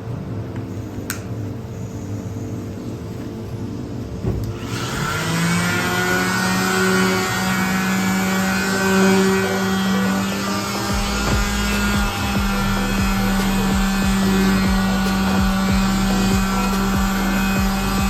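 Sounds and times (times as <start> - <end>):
electric power tool whining: 4.4 - 18.0.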